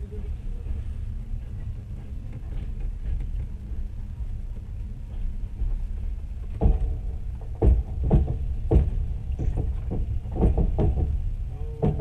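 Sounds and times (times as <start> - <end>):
train carriage rumbling: 0.0 - 12.0
wheels knocking and clanking: 5.6 - 12.0.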